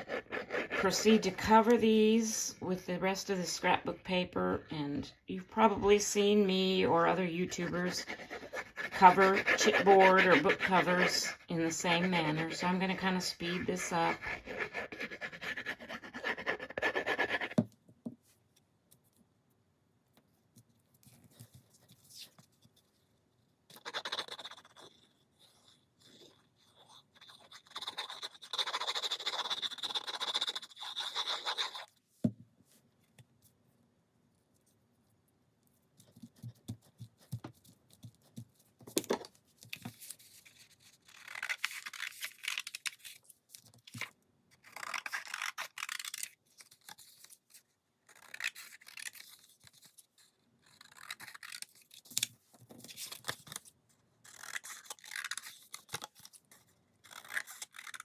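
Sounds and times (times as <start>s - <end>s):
paper rubbed by hand: 7.5s - 17.6s.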